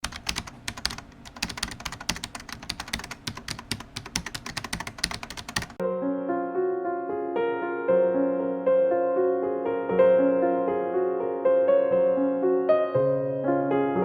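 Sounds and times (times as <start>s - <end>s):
keyboard typing: 0.0s - 5.8s
piano music: 0.2s - 14.0s.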